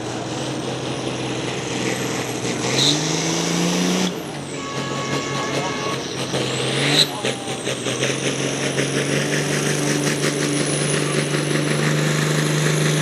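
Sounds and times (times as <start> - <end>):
tractor engine running hard: 0.0 - 13.0
turbo whistle: 4.5 - 6.2.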